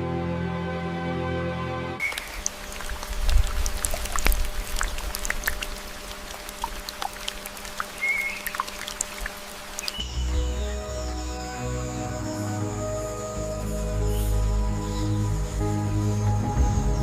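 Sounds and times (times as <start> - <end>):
music: 0.0 - 2.0, 10.0 - 17.0
water dripping and trickling: 2.0 - 10.1.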